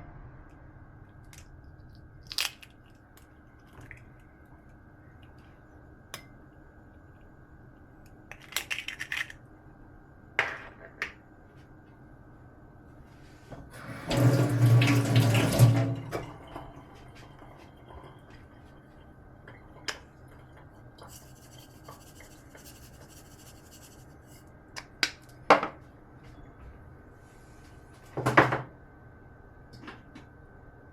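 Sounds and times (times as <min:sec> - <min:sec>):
kitchen tap running into sink: 0:13.6 - 0:16.8.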